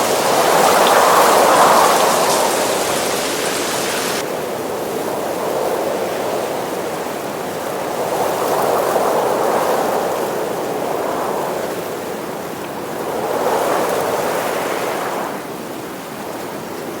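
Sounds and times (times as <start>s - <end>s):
rain falling: 0.0s - 4.2s.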